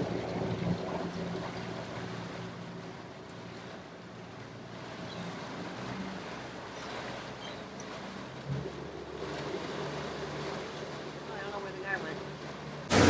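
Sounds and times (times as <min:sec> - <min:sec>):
water noise: 0:04.7 - 0:13.0
boat motor humming: 0:07.8 - 0:13.0.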